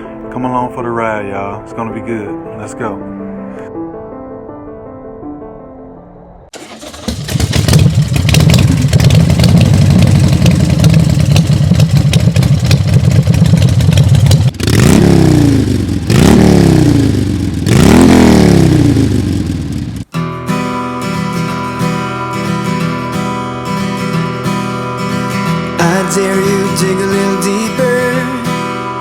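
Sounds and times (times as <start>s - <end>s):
motorcycle engine idling and revving: 6.6s - 20.1s.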